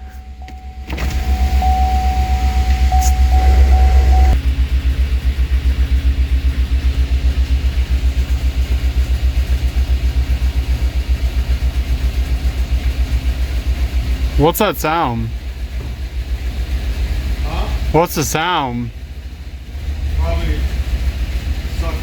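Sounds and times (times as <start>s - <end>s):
low steady hum: 0.0s - 4.4s
thin steady tone: 0.0s - 4.4s
engine idling with low pulsing: 0.0s - 22.0s.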